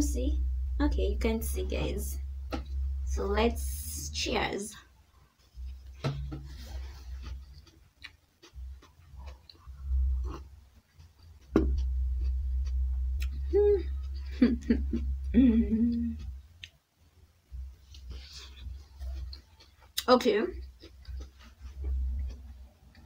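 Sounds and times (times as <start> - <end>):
low rumble: 0.0 - 5.0, 9.6 - 10.5, 11.4 - 16.4, 21.1 - 23.0
person chewing food: 5.3 - 15.3, 17.6 - 23.0
person murmuring: 13.3 - 16.3.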